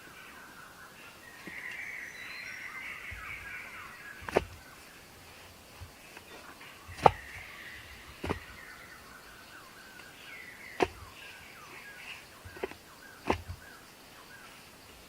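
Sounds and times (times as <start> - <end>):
birds chirping: 0.0 - 15.0
sharp clicks or knocks: 4.2 - 4.6.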